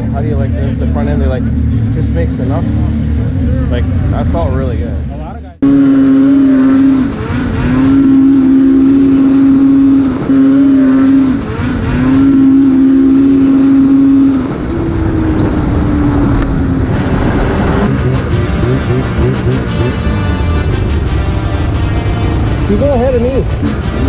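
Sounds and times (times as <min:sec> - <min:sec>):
snowmobile engine whining: 0:00.0 - 0:24.0
snowmobile passing by: 0:05.7 - 0:24.0.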